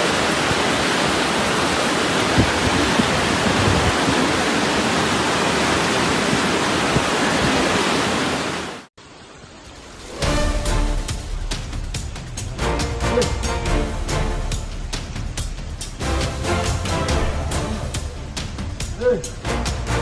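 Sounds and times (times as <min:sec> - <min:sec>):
fast-flowing floodwater rushing: 0:00.0 - 0:11.2
music: 0:09.9 - 0:20.0.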